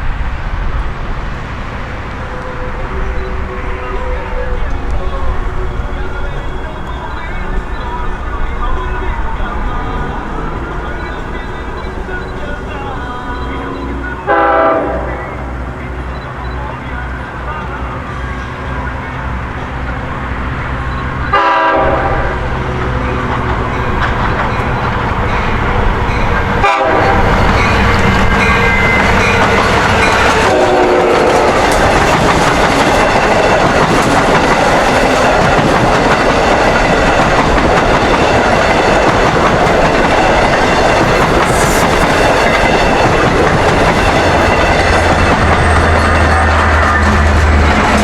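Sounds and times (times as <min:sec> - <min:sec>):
train passing close by: 0:00.0 - 0:48.0
locomotive horn blasts: 0:02.3 - 0:19.9, 0:21.2 - 0:24.6, 0:25.2 - 0:33.7
wheels clicking over rail joints: 0:22.5 - 0:26.6, 0:27.2 - 0:48.0.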